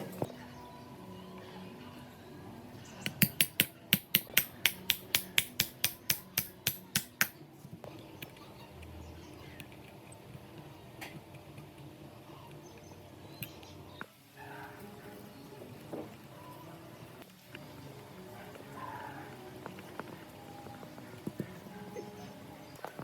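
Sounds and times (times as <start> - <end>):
sharp metallic taps: 3.1 - 7.4.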